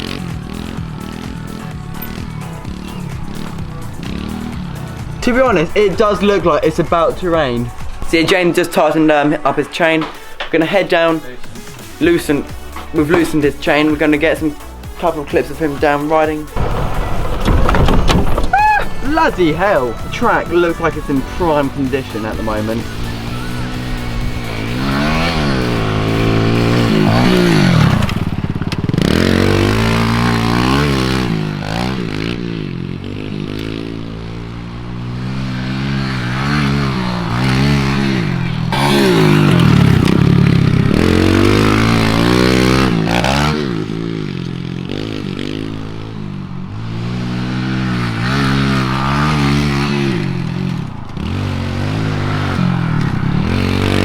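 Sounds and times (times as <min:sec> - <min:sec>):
motorbike engine revving: 0:00.0 - 0:09.2, 0:11.7 - 0:54.0.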